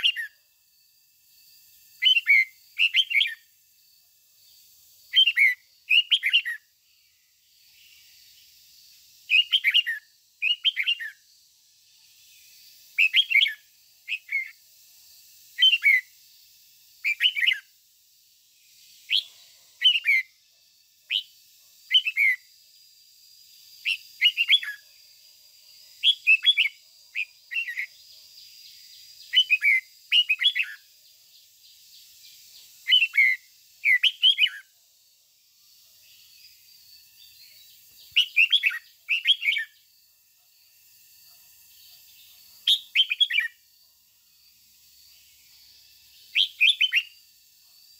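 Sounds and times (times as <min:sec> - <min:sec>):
bulbul singing: 0:00.0 - 0:00.4, 0:02.0 - 0:03.5, 0:05.0 - 0:08.2, 0:09.2 - 0:11.4, 0:12.2 - 0:14.6, 0:15.5 - 0:16.2, 0:17.0 - 0:17.7, 0:19.0 - 0:20.4, 0:21.1 - 0:22.5, 0:23.8 - 0:24.8, 0:26.0 - 0:30.9, 0:32.0 - 0:34.7, 0:37.2 - 0:39.9, 0:42.1 - 0:43.6, 0:46.1 - 0:47.2.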